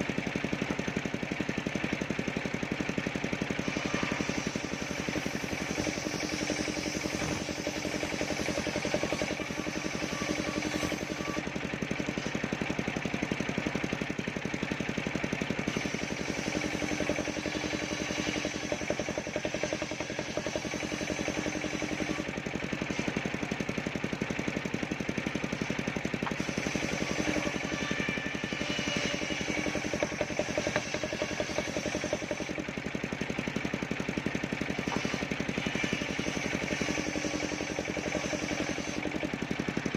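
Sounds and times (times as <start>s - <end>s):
saw rig engine running: 0.0s - 39.9s.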